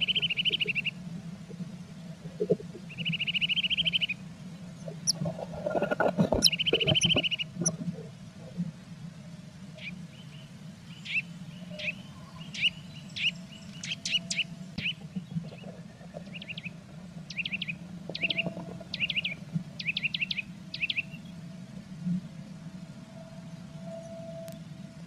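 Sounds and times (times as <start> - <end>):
small bird chirping: 0.0 - 0.9, 2.9 - 4.2, 6.4 - 7.8, 10.9 - 15.6, 17.3 - 21.2
steady low hum: 0.0 - 25.0.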